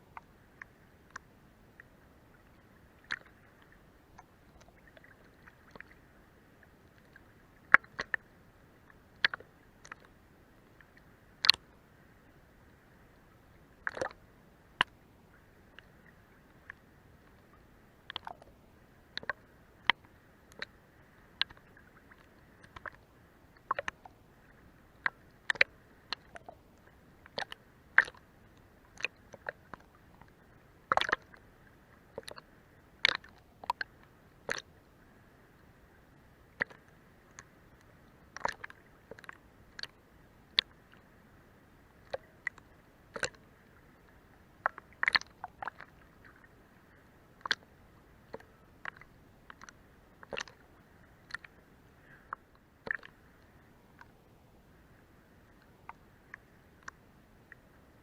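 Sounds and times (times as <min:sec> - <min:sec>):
faint water wash: 0:00.0 - 0:58.0
water slapping against boat hull: 0:13.8 - 0:14.2.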